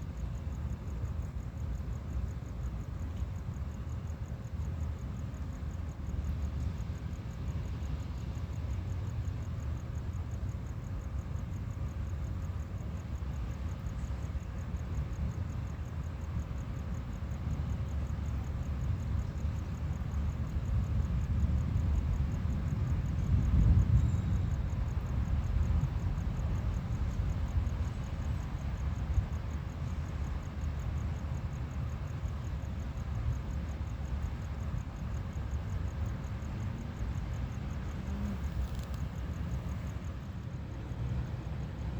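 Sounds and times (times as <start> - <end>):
faint insect chirring: 0.0 - 41.9
wind rumble on microphone: 17.8 - 41.9.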